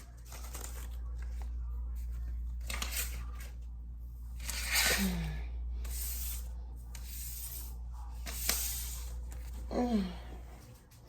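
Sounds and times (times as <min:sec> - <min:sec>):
banknotes rustling: 0:00.0 - 0:03.7.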